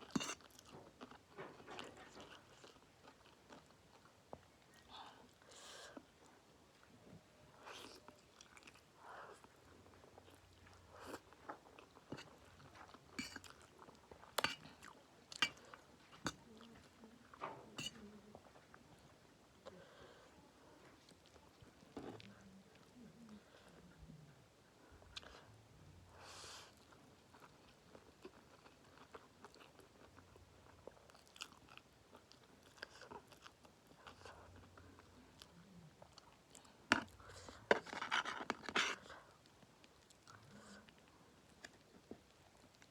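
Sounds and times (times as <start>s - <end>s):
person chewing noodles: 0.0s - 1.3s, 2.0s - 6.2s, 7.6s - 16.7s, 26.6s - 42.9s.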